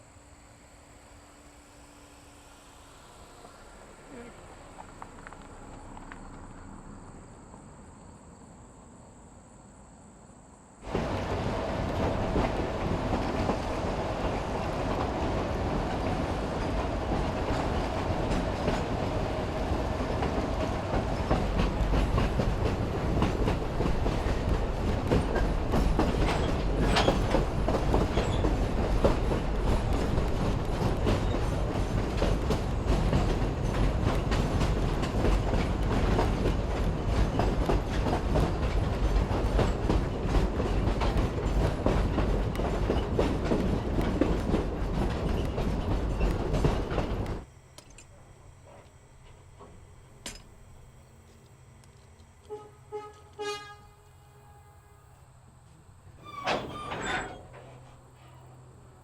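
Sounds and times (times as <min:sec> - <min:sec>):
train cars rumbling: 0:10.8 - 0:47.5, 0:55.6 - 0:59.0
wheels clicking over rail joints: 0:10.8 - 0:53.5, 0:56.1 - 0:58.6
faint wheel squeal: 0:56.2 - 0:58.7.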